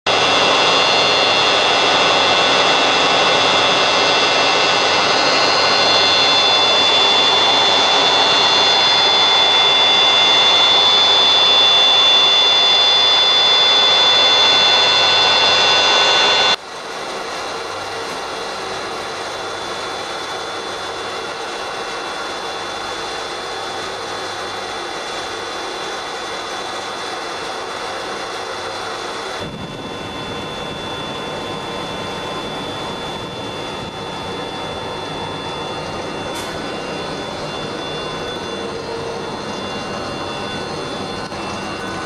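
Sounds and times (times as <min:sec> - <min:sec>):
pump motor rushing and whining: 0:00.1 - 0:42.0.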